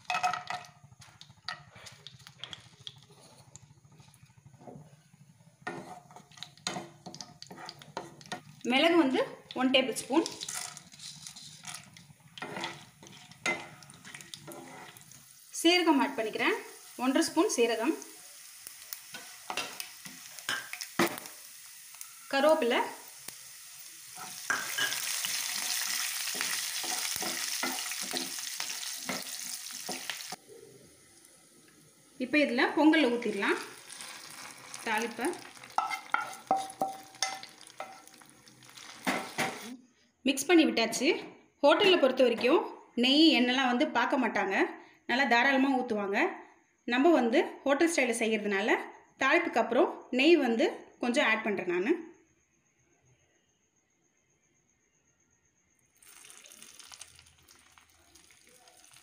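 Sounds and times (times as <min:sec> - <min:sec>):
nuts sizzling in oil: 0:00.0 - 0:39.8, 0:56.0 - 0:59.0
spoon scraping a pan: 0:01.0 - 0:08.6, 0:09.9 - 0:15.3, 0:19.0 - 0:21.3, 0:24.0 - 0:30.4, 0:32.8 - 0:39.8.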